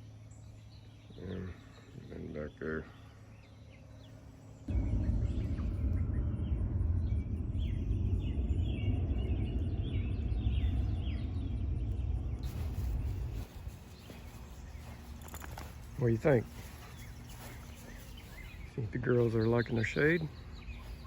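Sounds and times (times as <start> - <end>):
loud low rumble: 4.6 - 21.0
chicks chirping: 4.8 - 21.0.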